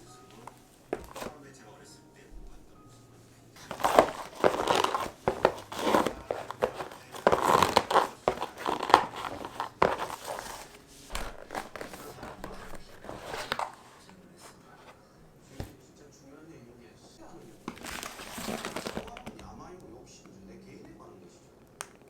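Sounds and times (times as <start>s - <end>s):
crinkling and crunching handling: 0.0s - 1.5s, 3.6s - 15.8s, 17.1s - 19.6s.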